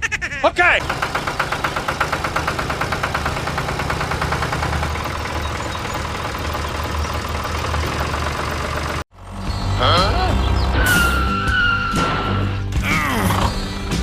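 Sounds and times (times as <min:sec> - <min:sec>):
small engine knocking: 0:00.8 - 0:09.3.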